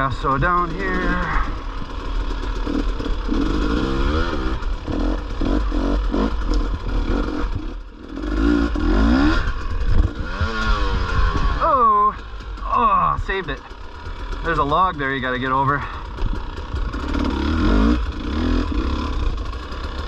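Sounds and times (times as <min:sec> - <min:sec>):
dirt bike engine revving: 0:00.0 - 0:20.0
clatter and scraping: 0:00.2 - 0:11.6, 0:12.2 - 0:20.0.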